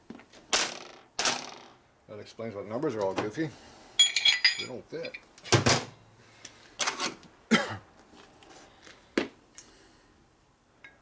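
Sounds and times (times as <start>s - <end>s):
man coughing and grunting: 7.5s - 7.8s.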